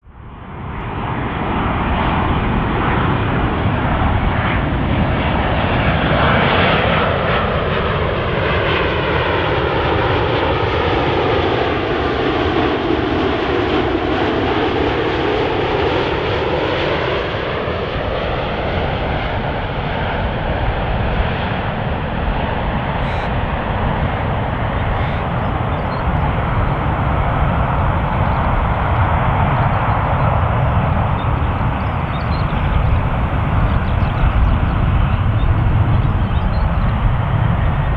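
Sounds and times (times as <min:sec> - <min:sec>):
jet engine of passing airplane: 0:00.1 - 0:37.9.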